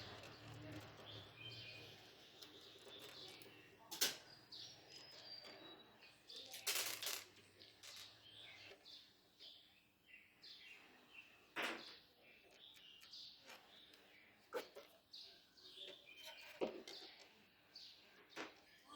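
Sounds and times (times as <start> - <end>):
faint birds chirping: 0.0 - 18.9
scraping or rustling: 6.4 - 8.1.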